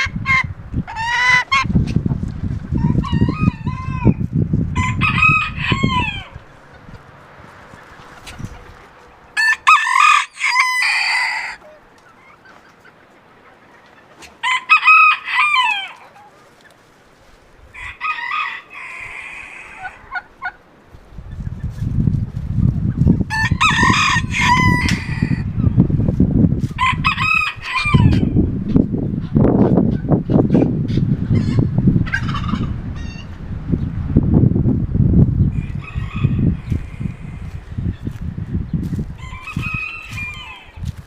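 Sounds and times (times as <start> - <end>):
roosters crowing: 0.0 - 1.7, 2.7 - 12.4, 14.2 - 16.6, 17.6 - 20.6, 23.2 - 25.8, 26.6 - 28.5, 30.5 - 33.4, 35.5 - 38.2, 38.8 - 41.0
wind rumble on microphone: 0.0 - 9.7, 17.2 - 41.0
hens clucking: 0.0 - 33.4, 35.5 - 38.2, 38.8 - 41.0.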